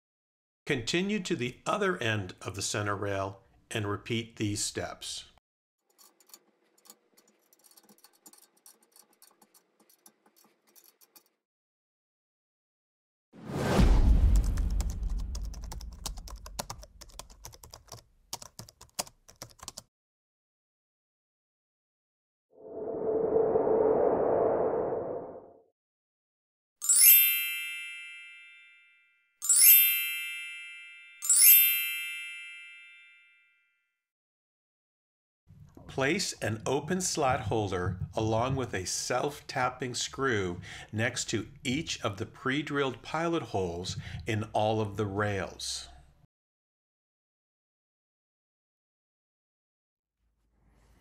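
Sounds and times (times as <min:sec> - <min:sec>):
metallic clicks and rattles of tools: 0:05.9 - 0:11.3
bell-like chimes: 0:26.8 - 0:33.7.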